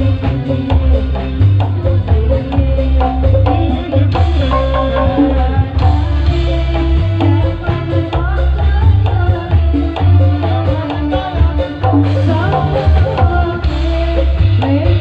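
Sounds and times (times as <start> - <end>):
hand drums playing: 0.0 - 15.0
heavy bass: 0.0 - 15.0
melody line: 4.3 - 6.1.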